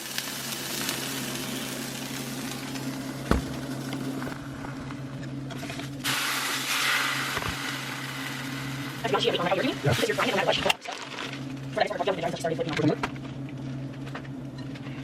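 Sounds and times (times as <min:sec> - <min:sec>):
tacos sizzling on a griddle: 0:00.0 - 0:04.3, 0:05.5 - 0:11.4
low hum: 0:00.7 - 0:10.5
knock: 0:03.3 - 0:03.6.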